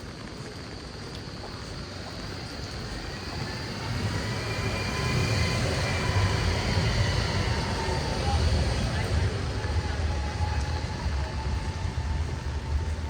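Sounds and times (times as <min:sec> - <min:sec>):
tram rumble: 0:00.0 - 0:13.0
electric motor whine: 0:02.4 - 0:13.0.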